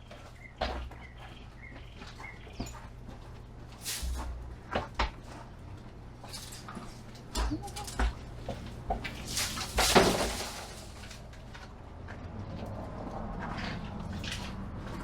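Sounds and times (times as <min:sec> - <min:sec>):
branches knocking and rustling: 0:03.7 - 0:11.7.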